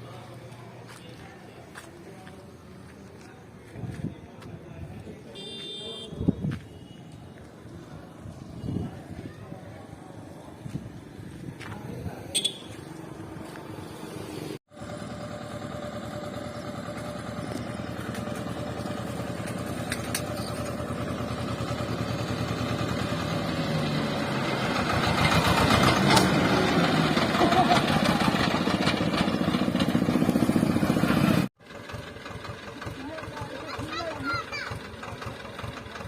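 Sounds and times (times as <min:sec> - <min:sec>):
tractor diesel engine running: 0:14.7 - 0:36.0.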